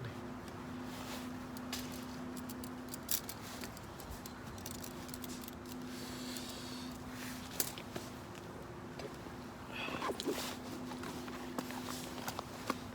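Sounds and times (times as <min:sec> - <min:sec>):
steady low hum: 0:00.0 - 0:12.9
gear clicking and rattling: 0:01.5 - 0:07.8.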